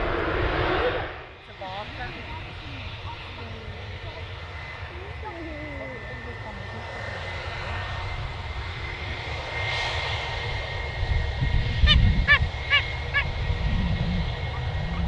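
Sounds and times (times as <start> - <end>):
jet engines whining: 0.0 - 15.0
goose honking: 11.9 - 13.3.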